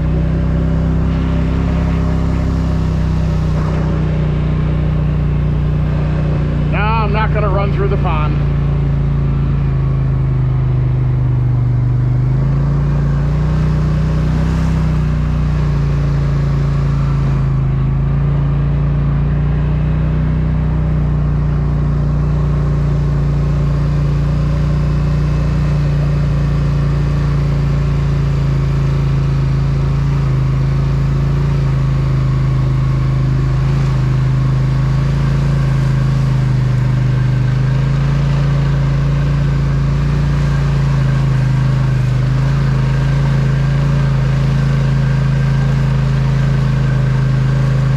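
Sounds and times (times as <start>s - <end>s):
atv engine running: 0.0s - 47.9s.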